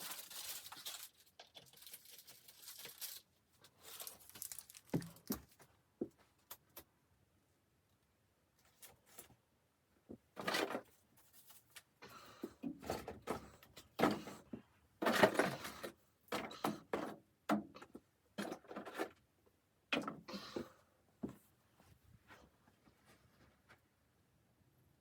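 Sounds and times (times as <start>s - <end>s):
handling knocks and rustles: 0.0s - 6.9s.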